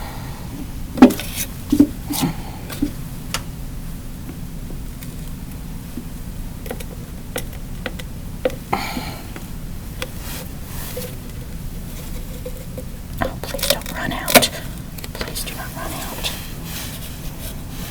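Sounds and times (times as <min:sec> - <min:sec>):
low steady hum: 0:00.0 - 0:17.9
clicks and taps of small objects: 0:06.7 - 0:08.6.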